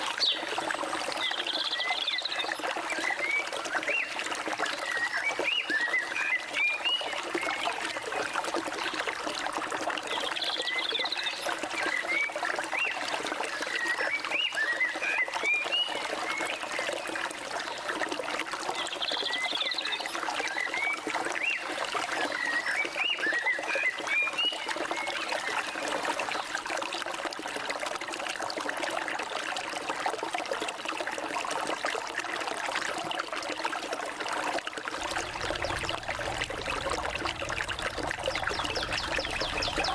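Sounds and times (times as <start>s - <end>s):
flowing water: 0.0s - 39.9s
birds chirping: 35.0s - 39.9s
high buzzy bird call: 35.1s - 39.9s.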